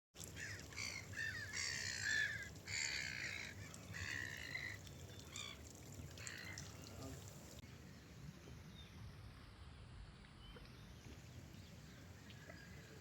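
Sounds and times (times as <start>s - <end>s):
gulls calling: 0.2s - 7.2s.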